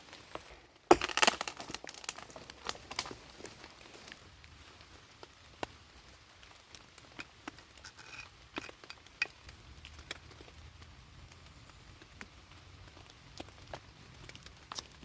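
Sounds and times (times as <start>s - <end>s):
raindrops ticking: 5.0s - 15.0s.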